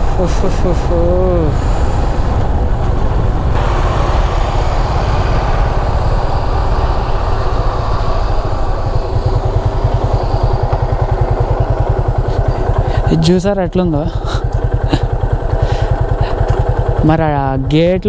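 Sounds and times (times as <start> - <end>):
wind rushing on microphone: 0.0 - 13.4
motorcycle engine pulsing: 0.0 - 18.0.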